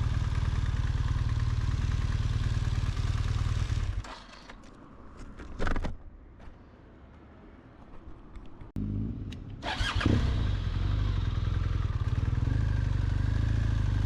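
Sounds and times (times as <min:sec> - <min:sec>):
motorcycle engine idling: 0:00.0 - 0:04.0, 0:09.7 - 0:14.0.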